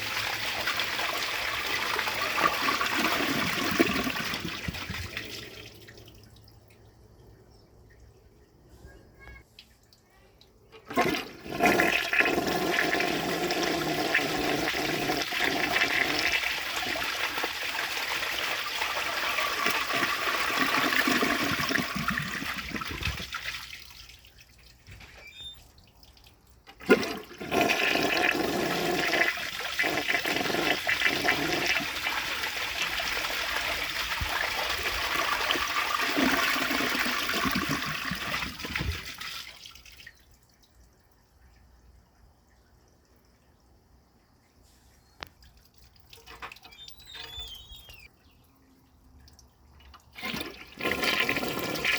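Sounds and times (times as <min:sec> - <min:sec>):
toilet flushing water: 0:00.0 - 0:06.0, 0:10.7 - 0:24.2, 0:26.7 - 0:40.1, 0:50.0 - 0:51.9.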